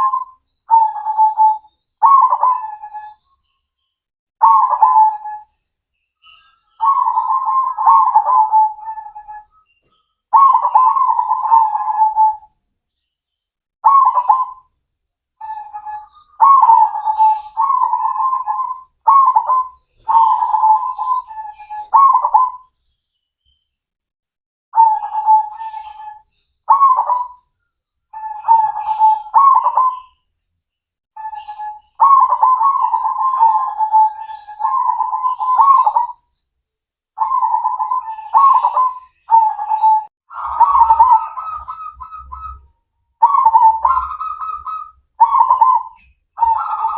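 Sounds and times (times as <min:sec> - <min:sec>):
dove cooing: 0:00.0 - 0:03.2, 0:04.4 - 0:05.5, 0:06.4 - 0:09.4, 0:10.3 - 0:12.5, 0:13.8 - 0:14.6, 0:15.4 - 0:22.7, 0:24.8 - 0:27.4, 0:28.2 - 0:30.2, 0:31.2 - 0:36.3, 0:37.2 - 0:46.9.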